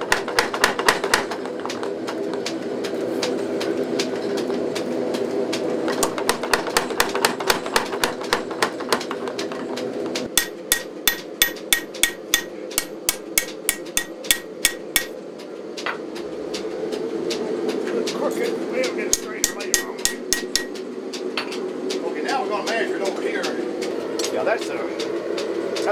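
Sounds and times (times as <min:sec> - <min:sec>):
steady drone: 0:10.3 - 0:15.3, 0:18.4 - 0:24.2
hammer striking blade on anvil: 0:10.4 - 0:15.2, 0:19.1 - 0:20.8.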